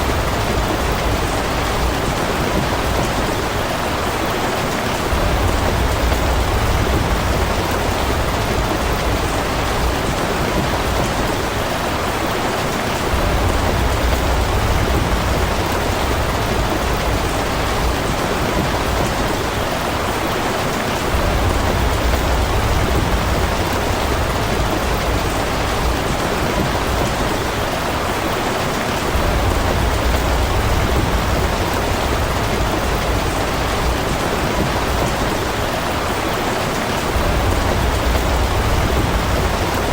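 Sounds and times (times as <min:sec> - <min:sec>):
steady rain: 0:00.0 - 0:39.9
low rumble: 0:05.1 - 0:10.6, 0:37.2 - 0:39.9.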